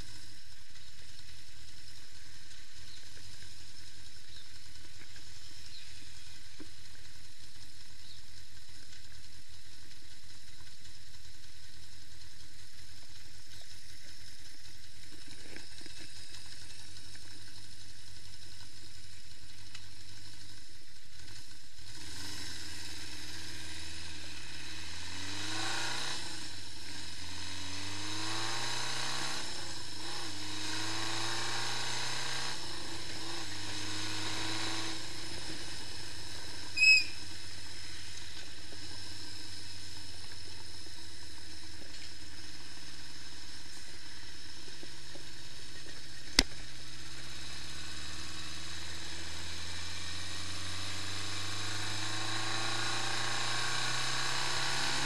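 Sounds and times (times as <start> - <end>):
motorcycle engine running: 0.0 - 55.0
short high chirp: 36.7 - 37.2
sharp click: 46.3 - 46.6.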